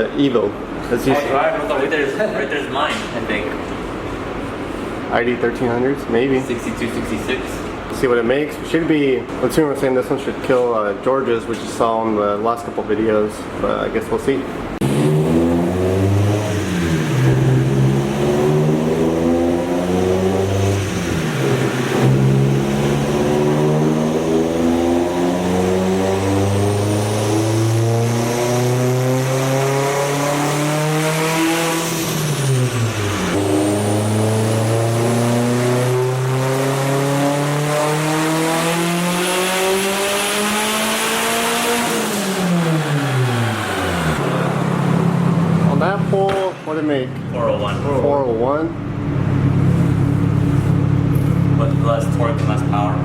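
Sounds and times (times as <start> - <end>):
car engine revving: 14.8 - 53.0.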